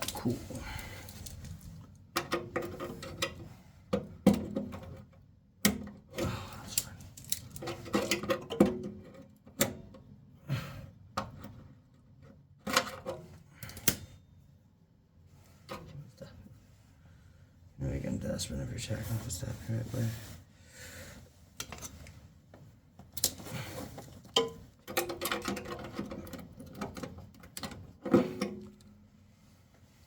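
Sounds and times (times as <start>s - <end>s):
metal tools clinking and scraping: 6.7s - 8.4s.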